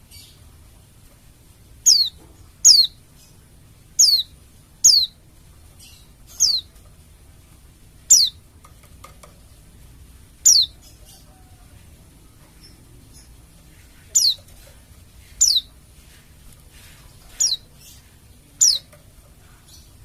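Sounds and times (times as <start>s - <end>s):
bird high descending calls: 1.9s - 3.0s, 10.4s - 11.4s.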